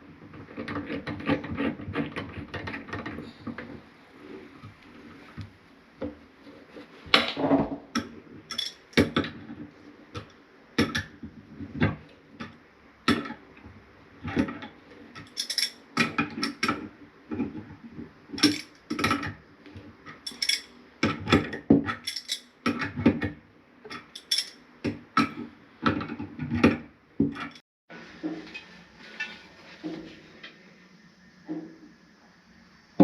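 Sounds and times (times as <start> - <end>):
metal and ceramic clinks and knocks: 8.5 - 8.8, 15.3 - 15.8, 18.4 - 18.8, 20.3 - 20.7, 22.0 - 22.5, 24.0 - 24.6.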